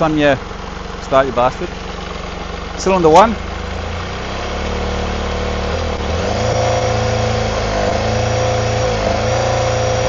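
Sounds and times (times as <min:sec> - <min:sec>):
motorcycle engine idling with misfire: 0:00.0 - 0:06.4.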